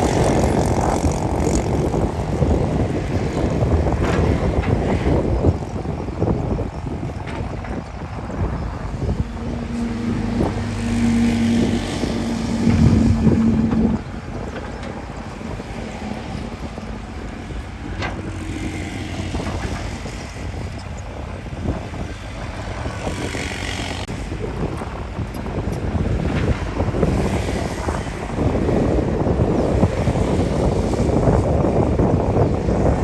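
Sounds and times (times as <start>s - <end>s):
low machinery rumble: 0.0s - 23.2s
diesel engine working: 0.0s - 33.0s.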